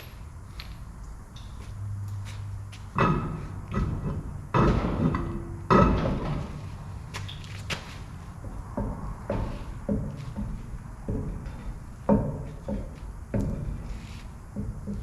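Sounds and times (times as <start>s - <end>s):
loud metallic clanks: 2.9s - 6.8s.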